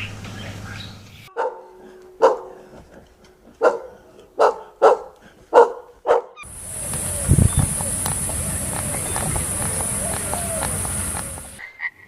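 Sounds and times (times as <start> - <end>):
dog barking: 1.3 - 2.7, 3.6 - 6.4
steady high hiss: 6.5 - 11.6.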